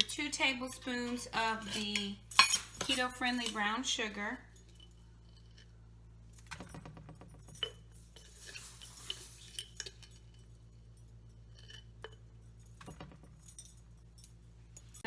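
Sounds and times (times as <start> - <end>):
low steady hum: 0.0 - 15.0
sugar scraping into pan: 8.2 - 10.0.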